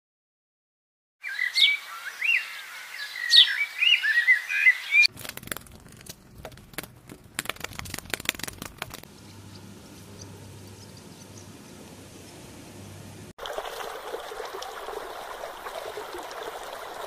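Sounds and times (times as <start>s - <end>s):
bird chirping and twittering: 1.2s - 5.1s, 9.2s - 11.8s.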